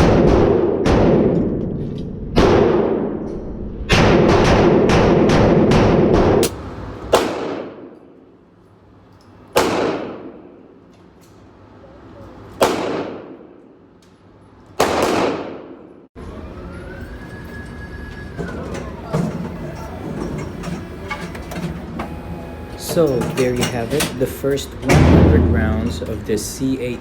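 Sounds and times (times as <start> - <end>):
pistol shots echoing indoors: 0.0 - 8.5, 9.5 - 10.9, 12.5 - 14.1, 14.8 - 16.1.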